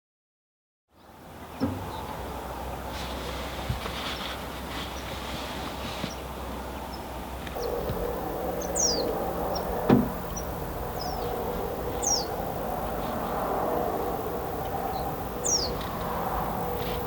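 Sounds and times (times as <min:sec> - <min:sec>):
steady background hum: 0:01.2 - 0:17.0
small bird calling: 0:07.6 - 0:17.0.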